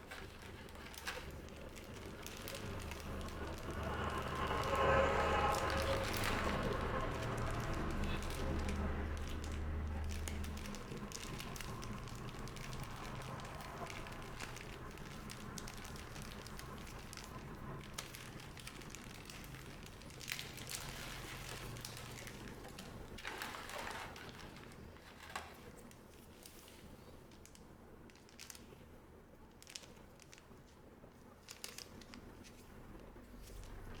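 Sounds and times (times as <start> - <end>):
plastic packaging crinkling: 0.0 - 34.0.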